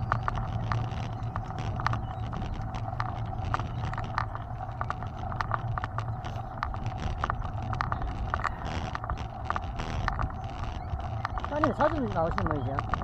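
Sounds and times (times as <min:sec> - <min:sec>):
bike rattling and clicking: 0:00.0 - 0:13.0
wind on microphone: 0:00.0 - 0:13.0.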